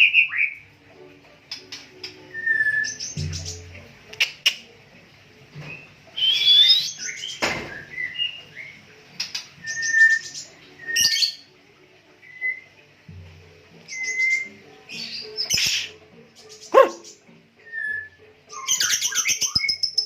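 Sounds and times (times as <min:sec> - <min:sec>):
bird singing whistles and chatter: 0:02.2 - 0:04.6, 0:05.7 - 0:11.5, 0:13.8 - 0:20.0.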